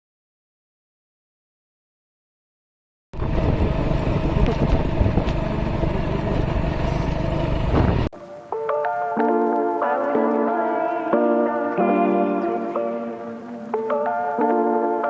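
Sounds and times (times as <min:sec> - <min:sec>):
vehicle engine and road noise: 0:03.2 - 0:08.1.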